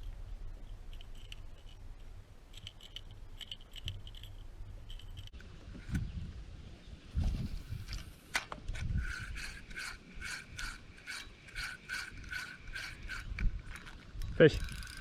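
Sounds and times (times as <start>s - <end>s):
fishing reel ticking whir: 9.0s - 15.0s.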